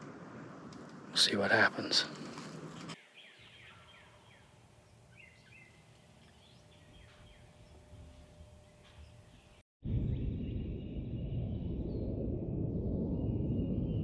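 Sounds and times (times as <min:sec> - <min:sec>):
rustle of noise: 0:00.1 - 0:03.0
small birds chirping: 0:02.8 - 0:09.6.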